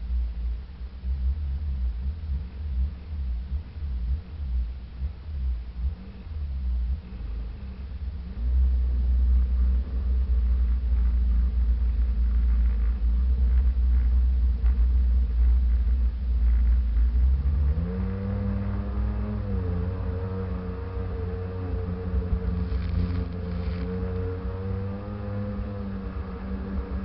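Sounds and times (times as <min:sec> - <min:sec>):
wind and water rumble: 0:22.3 - 0:24.8.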